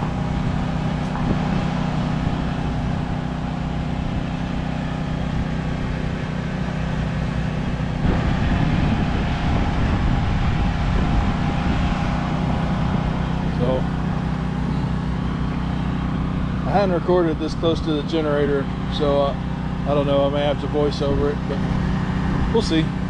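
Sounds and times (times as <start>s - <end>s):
generator engine hum: 0.0s - 23.0s
wind rumbling on microphone: 0.0s - 23.0s.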